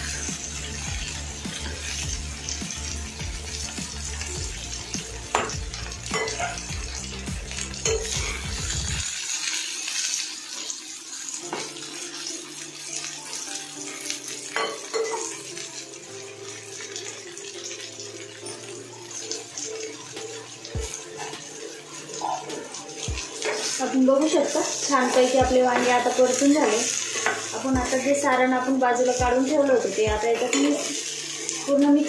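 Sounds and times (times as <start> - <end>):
vegetables sizzling in oil: 0.0 - 32.0
metal spatula scraping a pan: 20.9 - 28.0.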